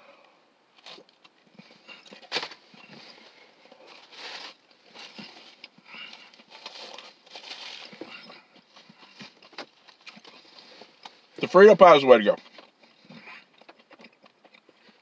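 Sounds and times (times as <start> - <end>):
person chewing food: 0.8 - 11.4, 12.4 - 15.0
paper wrappers rustling: 0.8 - 13.8.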